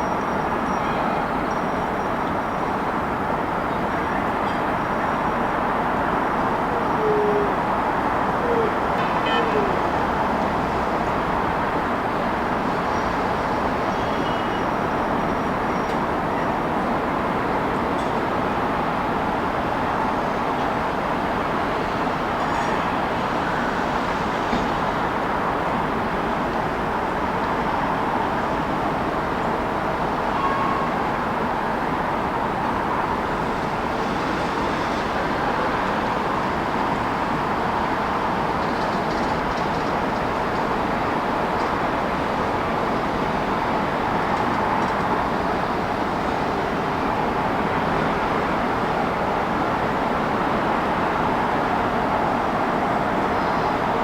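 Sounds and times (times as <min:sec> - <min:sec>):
city traffic noise: 0:00.0 - 0:54.0.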